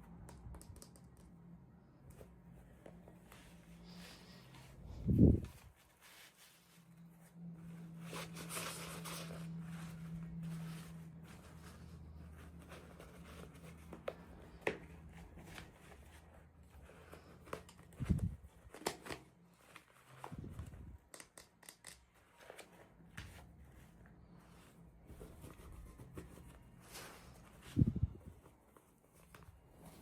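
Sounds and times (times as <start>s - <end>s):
faint low hum: 0.0s - 18.8s
clicks and taps of small items: 0.1s - 1.4s, 21.0s - 22.1s.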